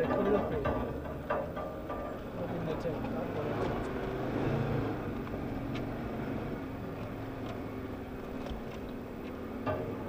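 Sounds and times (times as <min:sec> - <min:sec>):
off-road vehicle engine running: 0:02.1 - 0:10.0.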